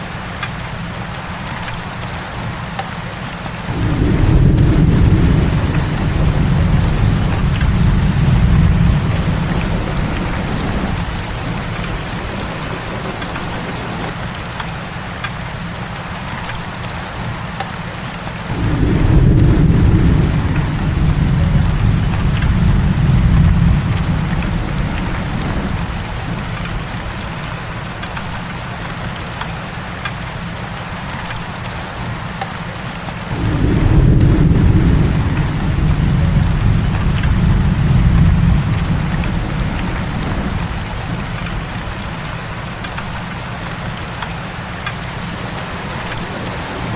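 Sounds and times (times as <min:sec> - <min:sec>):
heavy rain: 0:00.0 - 0:46.9
thunder rumbling: 0:03.7 - 0:14.6, 0:18.5 - 0:28.6, 0:33.3 - 0:44.2.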